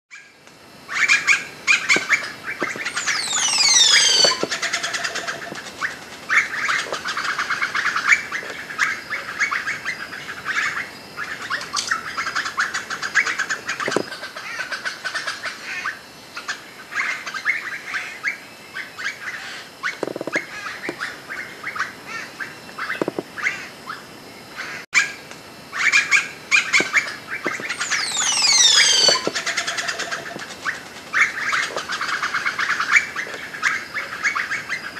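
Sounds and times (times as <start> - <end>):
forest birds chattering: 0.9 - 34.9
high whistled notes sweeping down: 2.0 - 4.6, 26.8 - 30.4.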